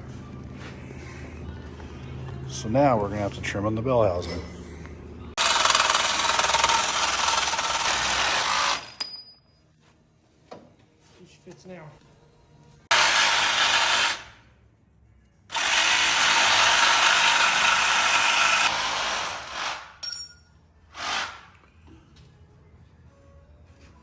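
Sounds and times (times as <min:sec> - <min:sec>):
power tool cutting metal: 0:05.4 - 0:09.0, 0:12.9 - 0:14.3.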